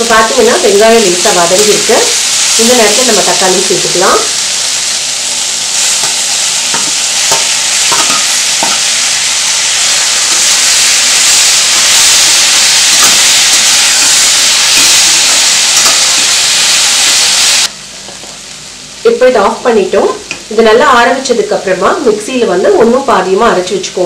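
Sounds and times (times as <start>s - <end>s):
onions sizzling in oil: 0.0s - 17.7s.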